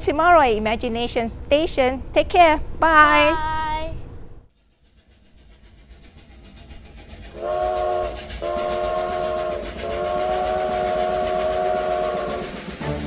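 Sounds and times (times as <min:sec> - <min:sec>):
steam locomotive chugging: 0:04.6 - 0:13.0
train chime whistle blasts: 0:07.4 - 0:13.0.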